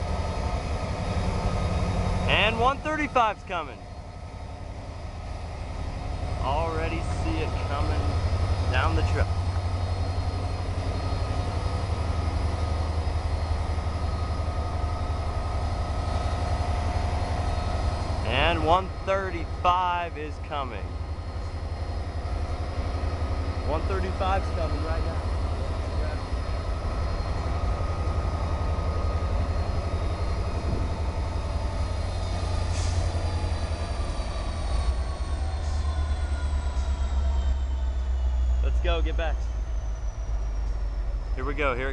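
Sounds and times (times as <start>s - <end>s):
diesel locomotives rumbling: 0.0s - 41.9s
wheel squeal: 31.7s - 41.8s.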